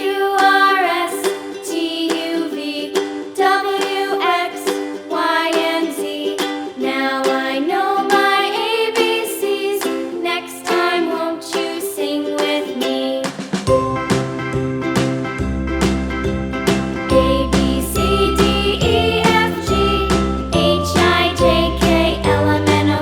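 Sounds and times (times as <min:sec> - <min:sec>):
plucked ukulele tune: 0:00.0 - 0:23.0
low bass: 0:13.7 - 0:23.0
sung or hummed melody: 0:13.7 - 0:23.0.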